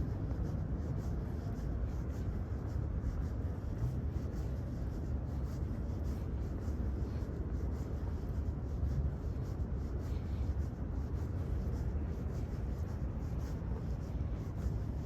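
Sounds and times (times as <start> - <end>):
city rumble: 0.0 - 15.0.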